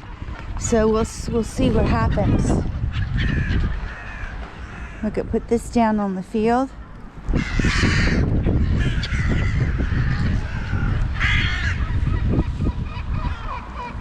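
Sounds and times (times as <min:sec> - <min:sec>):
wind buffeting microphone: 0:00.0 - 0:14.0
crows cawing: 0:02.8 - 0:05.1, 0:07.3 - 0:14.0.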